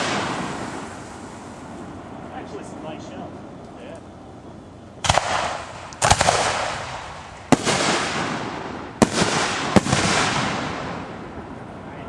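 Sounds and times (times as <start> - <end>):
firework bangs with rumble: 0.0 - 1.2, 5.0 - 11.5.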